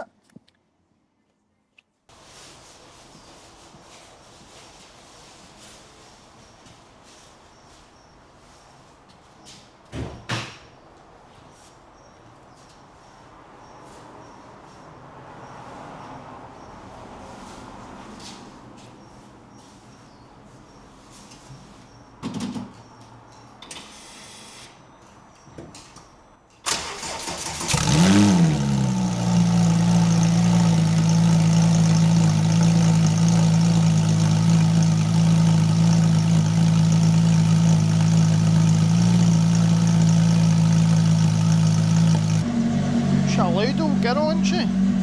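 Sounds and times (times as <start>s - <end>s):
thump: 9.9s - 10.6s
car engine starting and idling: 26.6s - 45.0s.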